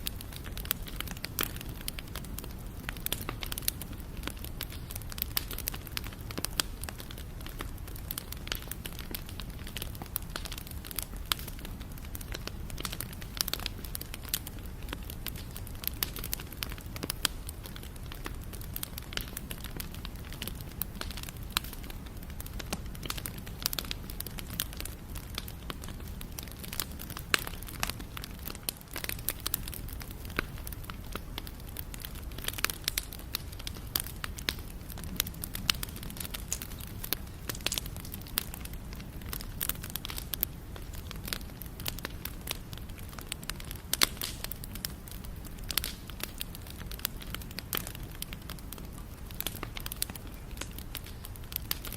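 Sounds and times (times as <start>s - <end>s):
bonfire crackling and popping: 0.0s - 51.9s
low fire rumble: 0.0s - 51.9s.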